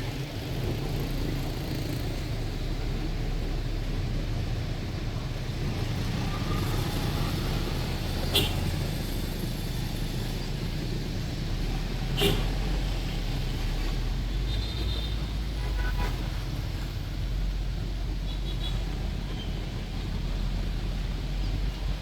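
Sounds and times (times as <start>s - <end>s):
bus engine: 0.0s - 22.0s
city traffic rumble: 0.0s - 22.0s.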